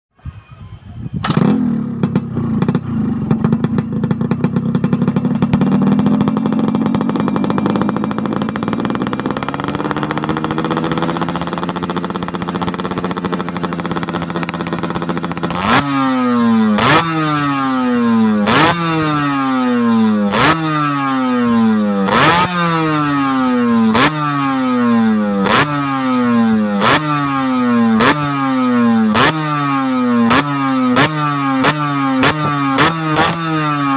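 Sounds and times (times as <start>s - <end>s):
engine throttle blips: 0.2s - 24.2s
two-stroke motorcycle engine running: 1.2s - 33.9s.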